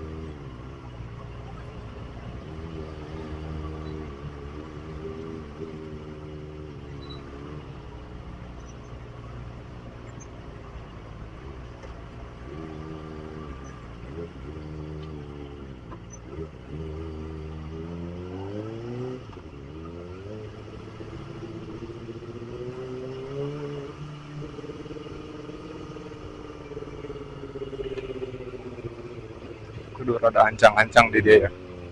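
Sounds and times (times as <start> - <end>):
motorcycle engine running: 19.4 - 31.9.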